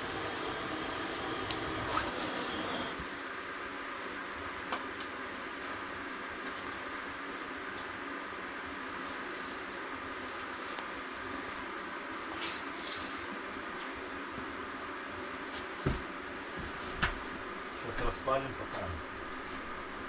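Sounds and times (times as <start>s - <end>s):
wood fire hissing and crackling: 0.0s - 3.1s.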